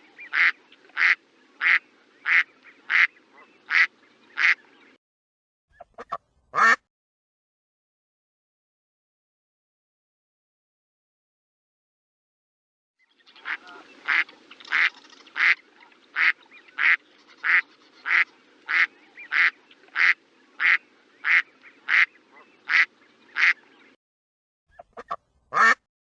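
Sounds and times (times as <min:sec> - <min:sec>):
duck quacking: 0:00.2 - 0:04.6, 0:05.8 - 0:06.8, 0:13.4 - 0:15.6, 0:16.2 - 0:23.6, 0:24.7 - 0:25.9.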